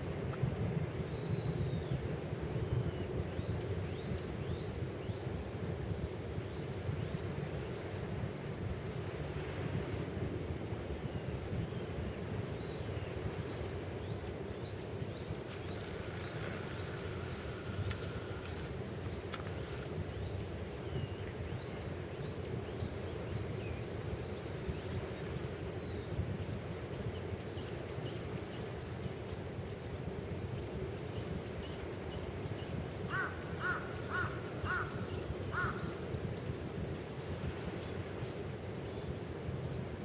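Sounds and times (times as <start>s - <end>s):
birds calling: 15.2s - 20.4s, 33.1s - 36.1s.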